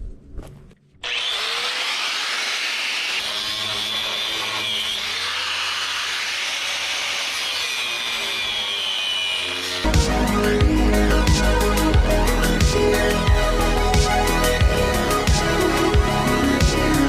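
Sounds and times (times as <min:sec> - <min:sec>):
power tool rasping: 0:01.0 - 0:09.9.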